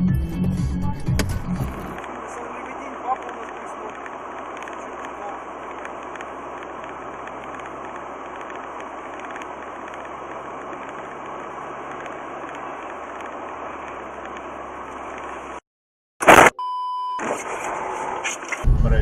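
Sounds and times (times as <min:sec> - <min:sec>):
car engine drone: 0:00.0 - 0:15.6, 0:17.2 - 0:19.0
road and wind noise: 0:00.9 - 0:15.6.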